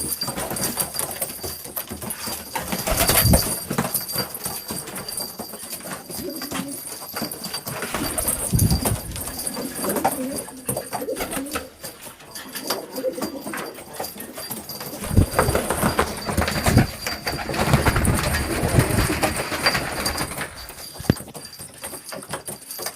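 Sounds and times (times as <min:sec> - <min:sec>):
pigeons cooing: 0:06.1 - 0:19.7.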